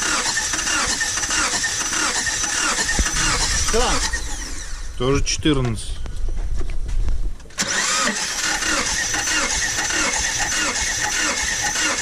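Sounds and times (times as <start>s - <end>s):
engine cranking on starter: 0.0s - 4.9s, 7.6s - 12.0s.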